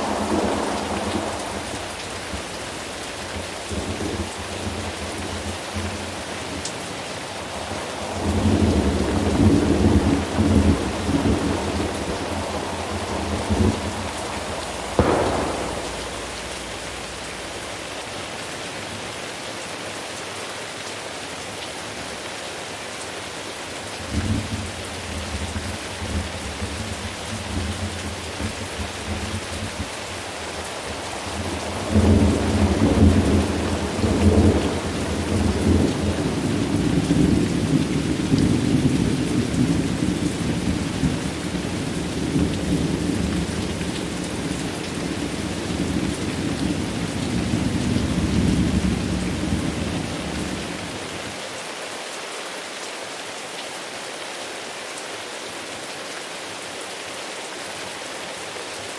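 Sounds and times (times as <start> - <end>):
rolling thunder: 0.0 - 5.0, 7.7 - 18.1, 28.0 - 50.7
steady rain: 0.0 - 58.9.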